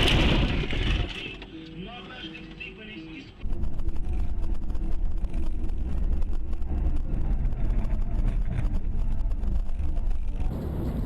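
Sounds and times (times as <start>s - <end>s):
road noise: 1.2s - 11.0s
car engine rumble: 3.4s - 11.0s.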